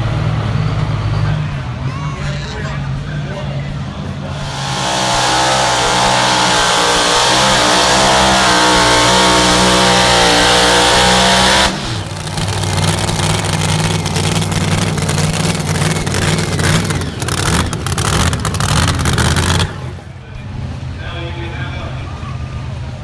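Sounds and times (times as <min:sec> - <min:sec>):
engine at full throttle: 0:00.0 - 0:01.8, 0:03.6 - 0:20.4
engine crackling: 0:00.0 - 0:20.8.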